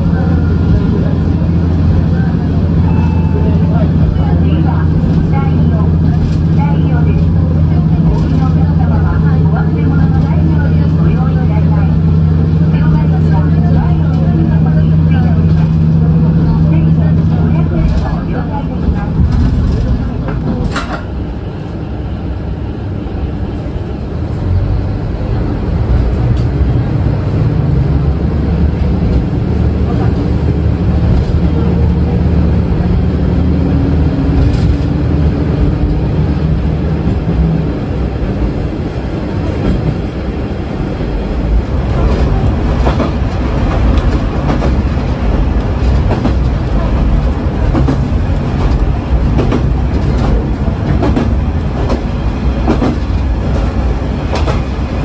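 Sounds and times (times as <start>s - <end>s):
railcar engine drone: 0.0s - 55.0s.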